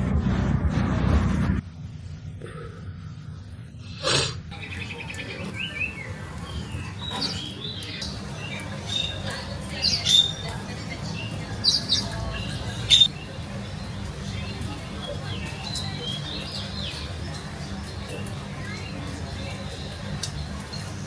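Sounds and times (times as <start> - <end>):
steady low hum: 0.0 - 5.2
birds chirping: 4.5 - 21.0.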